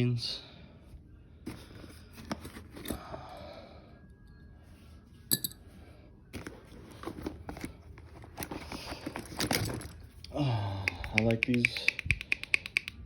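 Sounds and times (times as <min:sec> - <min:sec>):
bag rustling: 0:06.4 - 0:10.2.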